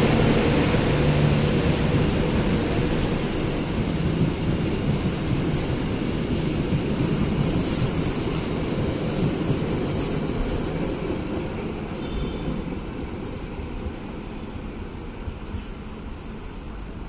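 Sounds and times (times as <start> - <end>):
train wheels rumbling on rails: 0.0 - 17.0
train wheels screeching: 9.0 - 10.9, 11.8 - 13.7, 15.4 - 17.0.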